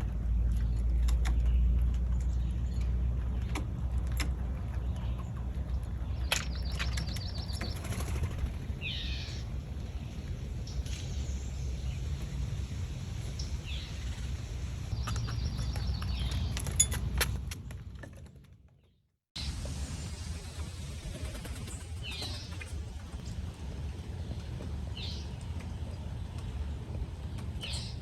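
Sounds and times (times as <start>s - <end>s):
steady low rumble: 0.0s - 17.2s, 19.4s - 28.0s
bird calls and trills: 0.1s - 16.9s, 21.0s - 23.3s, 24.0s - 28.0s.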